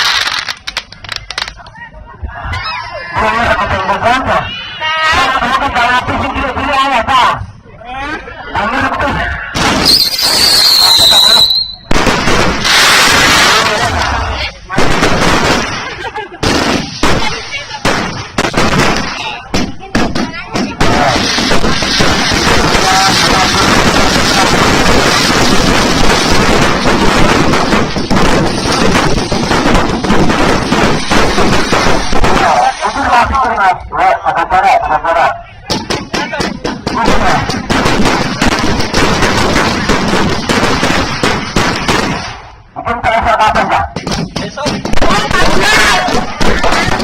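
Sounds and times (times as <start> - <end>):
fireworks bangs: 0.0 - 1.7, 9.1 - 33.6, 35.6 - 47.0.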